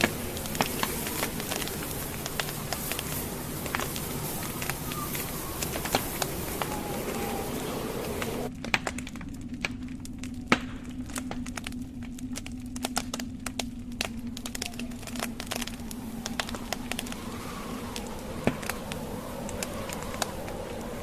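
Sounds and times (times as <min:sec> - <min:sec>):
rushing noise: 0:00.0 - 0:08.5, 0:14.5 - 0:21.0
steady low hum: 0:00.0 - 0:21.0
wood fire crackling: 0:00.0 - 0:21.0.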